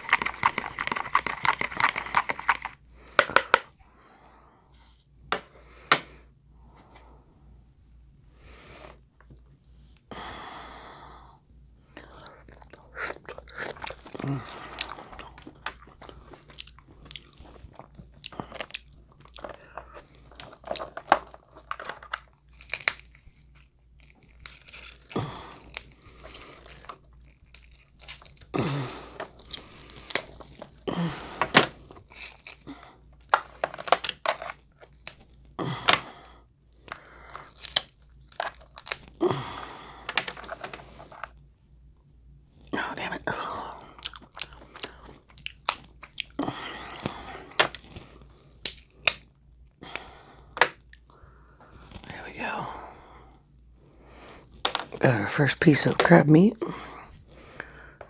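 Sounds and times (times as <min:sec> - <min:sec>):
close-up crunching: 0:00.0 - 0:03.6, 0:12.2 - 0:35.5, 0:36.7 - 0:41.4, 0:43.4 - 0:49.3, 0:51.6 - 0:52.4
crab shells cracking: 0:00.0 - 0:03.7, 0:13.3 - 0:30.7, 0:31.5 - 0:35.2, 0:36.8 - 0:39.2, 0:43.9 - 0:49.3.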